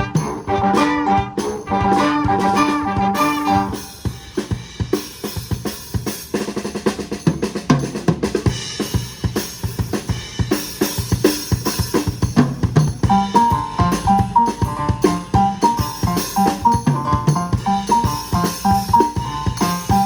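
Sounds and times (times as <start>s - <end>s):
sustained horn notes: 0.0s - 4.1s
drum kit playing: 0.0s - 20.0s.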